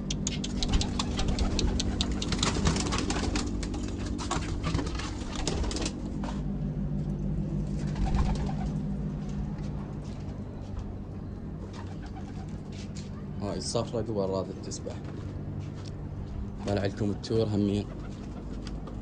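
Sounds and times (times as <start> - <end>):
pigeons cooing: 0.0 - 6.4, 7.7 - 9.3, 11.4 - 13.8, 17.6 - 19.0
sharp clicks and rustles: 0.1 - 10.8.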